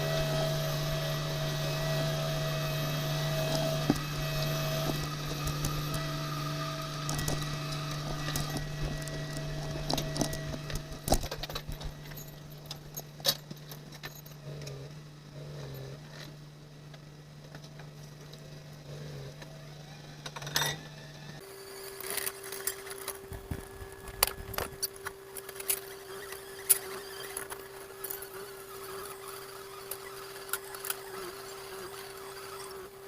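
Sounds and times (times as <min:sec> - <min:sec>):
ship machinery humming: 0:00.0 - 0:13.8.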